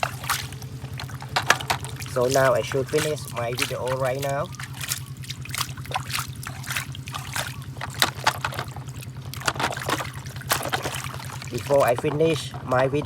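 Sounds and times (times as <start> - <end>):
steady low hum: 0.0 - 13.0
water dribbling and splashing: 0.0 - 13.0.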